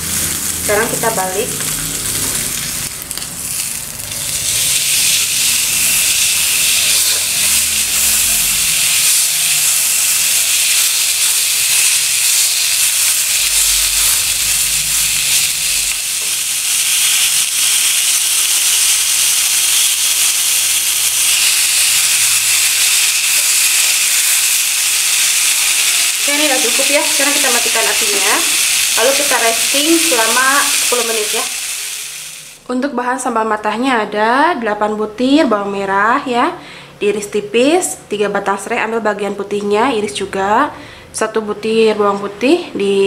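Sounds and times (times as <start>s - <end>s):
steak sizzling in a grill pan: 0.0s - 32.6s.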